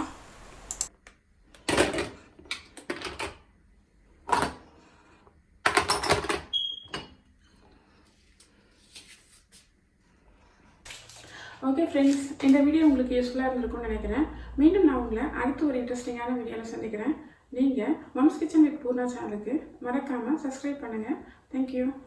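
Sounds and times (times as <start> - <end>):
kitchenware knocking and clattering: 5.7 - 7.2.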